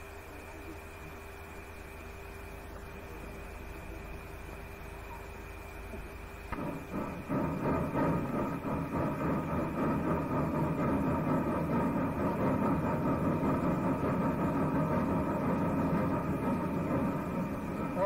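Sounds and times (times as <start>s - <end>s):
train rumbling: 6.5s - 18.0s.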